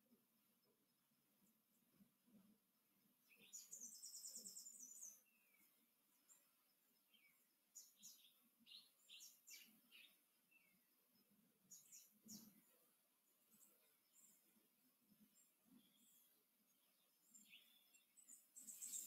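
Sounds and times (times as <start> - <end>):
faint songbird trilling: 3.2 - 10.8, 15.3 - 19.0.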